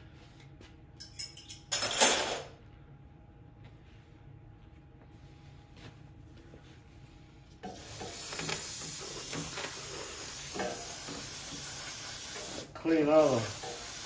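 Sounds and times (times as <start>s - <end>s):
spray can hissing: 7.8s - 14.0s.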